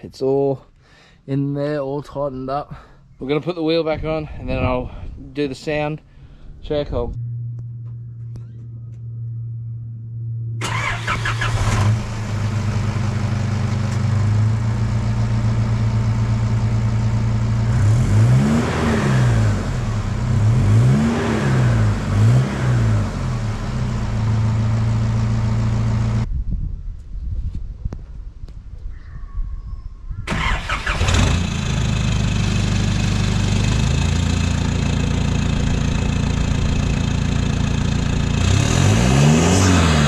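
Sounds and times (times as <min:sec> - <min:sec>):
engine idling and revving: 0:10.2 - 0:26.3, 0:30.3 - 0:40.0.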